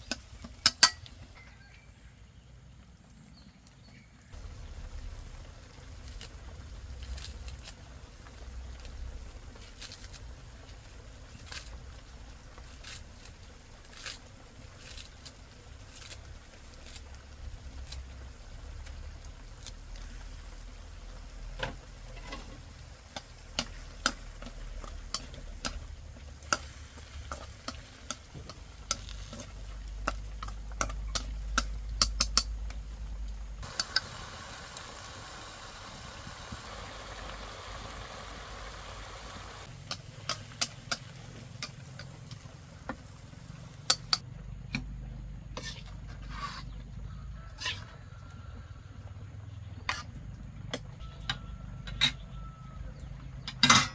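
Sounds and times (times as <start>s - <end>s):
steady hiss: 31.4s - 44.2s.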